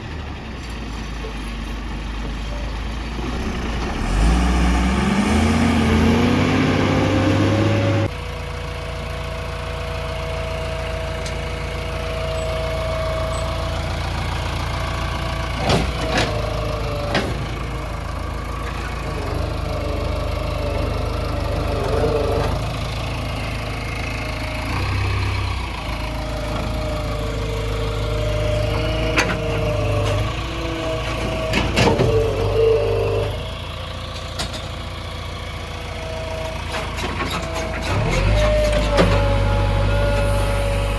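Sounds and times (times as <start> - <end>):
diesel engine droning: 0.0 - 40.9
hydraulic whine: 36.1 - 40.9.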